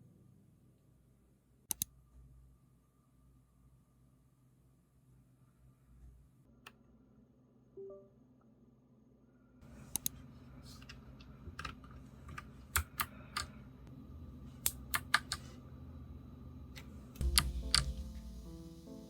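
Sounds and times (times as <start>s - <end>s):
mechanical keyboard clicks: 11.6s - 13.6s, 14.6s - 15.4s, 17.2s - 18.0s.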